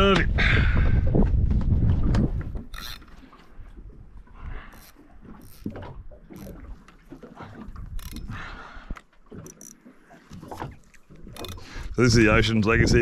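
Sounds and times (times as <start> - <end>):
fishing tackle clicking and rattling: 2.6 - 3.5, 4.7 - 12.0
high clicks: 11.4 - 11.6.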